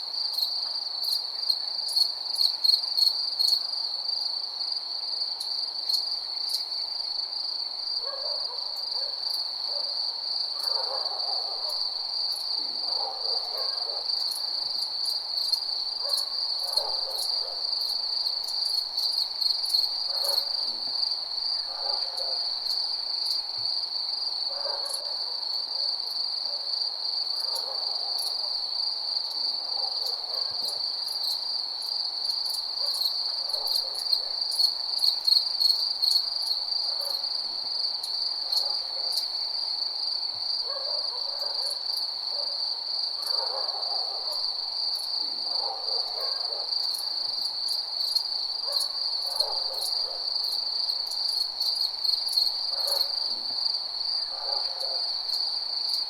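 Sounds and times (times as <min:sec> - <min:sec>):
fainter lower cricket calls: 0:00.0 - 0:56.0
crickets trilling: 0:11.5 - 0:56.0.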